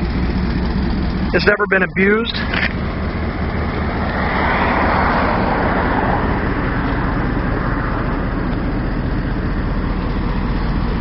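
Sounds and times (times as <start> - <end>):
pickup engine and road noise: 0.0 - 11.0.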